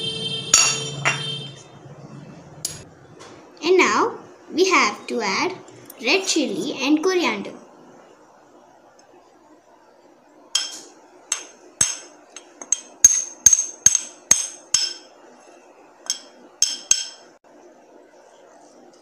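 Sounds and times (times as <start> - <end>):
metal spoon knocking on a pan: 0.6 - 1.3, 10.6 - 15.1, 16.1 - 17.3.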